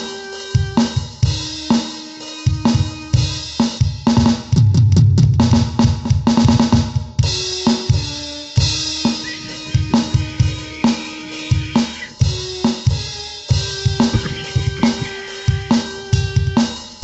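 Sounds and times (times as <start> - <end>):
cymbals: 0.0 - 4.4, 7.3 - 17.0
drum kit playing a steady beat: 0.0 - 17.0
held musical notes: 7.5 - 17.0.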